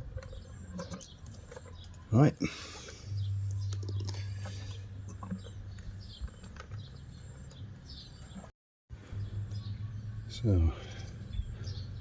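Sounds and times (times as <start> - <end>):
low steady hum: 0.0 - 7.9
small birds chirping: 0.0 - 12.0.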